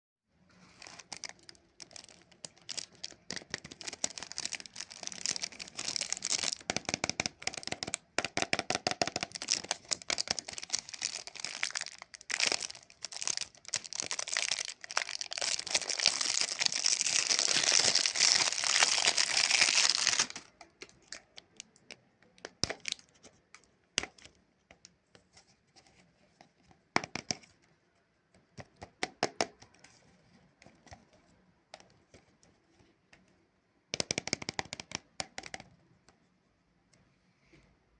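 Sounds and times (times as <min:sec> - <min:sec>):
plastic wrapper crinkling and tearing: 0:00.7 - 0:08.1, 0:08.7 - 0:21.8, 0:22.5 - 0:23.6.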